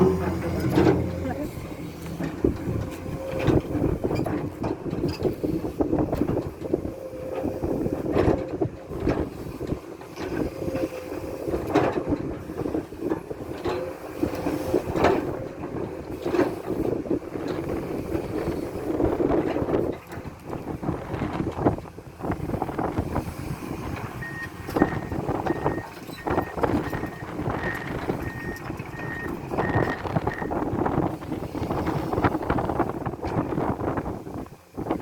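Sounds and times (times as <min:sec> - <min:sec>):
metallic knocks and clanks: 0:00.0 - 0:05.3
excavator diesel engine running: 0:00.0 - 0:35.0.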